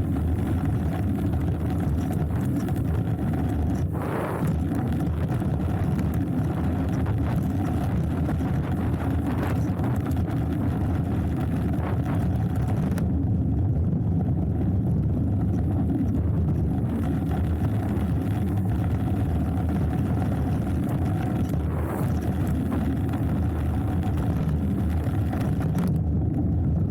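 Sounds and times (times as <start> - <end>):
bike tyres rumbling on dirt: 0.0 - 26.9
wind on microphone: 0.0 - 26.9
bike clicks and rattles: 0.1 - 3.9.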